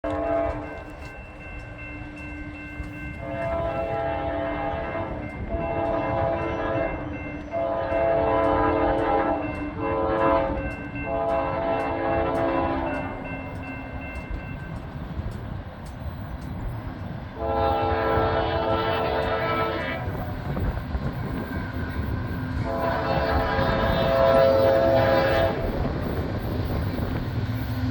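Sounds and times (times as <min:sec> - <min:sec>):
locomotive air horn blasts: 0:00.0 - 0:00.7, 0:03.2 - 0:13.1, 0:17.4 - 0:20.2, 0:22.6 - 0:25.9
passing train rumble: 0:00.0 - 0:27.9.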